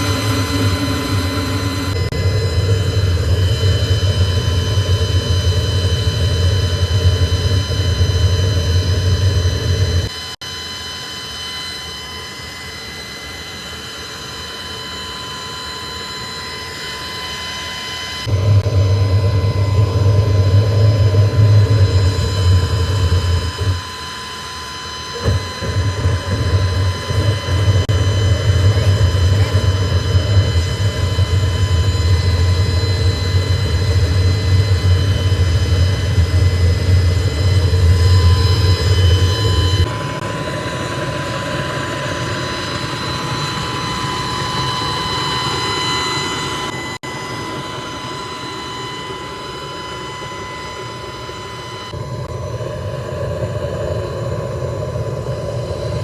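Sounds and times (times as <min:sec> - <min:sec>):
heavy machinery hum: 0:00.0 - 0:10.1, 0:18.2 - 0:24.1, 0:25.0 - 0:44.0
high machine whine: 0:00.0 - 0:56.0
light machine drone: 0:00.0 - 0:56.0.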